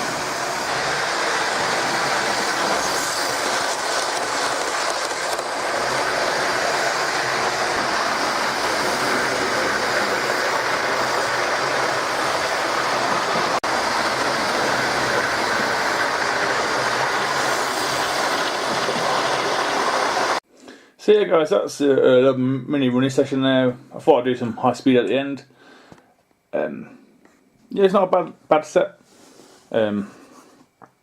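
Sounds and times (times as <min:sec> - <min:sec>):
model train motor whirring: 0:00.0 - 0:20.4.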